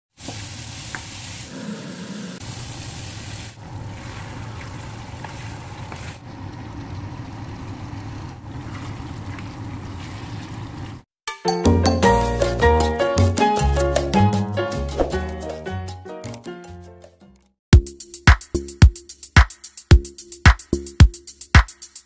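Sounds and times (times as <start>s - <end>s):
food sizzling in a wok: 0.1s - 6.2s.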